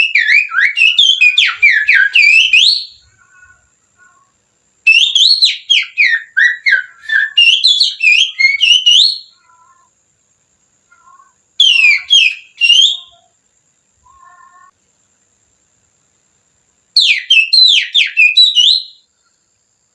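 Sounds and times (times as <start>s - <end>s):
finger whistling birdsong: 0.0s - 3.4s, 4.9s - 9.6s, 11.0s - 13.3s, 17.0s - 19.1s.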